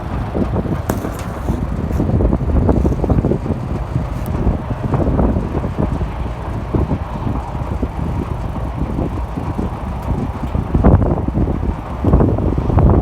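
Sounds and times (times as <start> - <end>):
tractor engine rumble: 0.0 - 13.0
wind buffeting microphone: 0.0 - 13.0
rattling and knocking: 0.2 - 4.5.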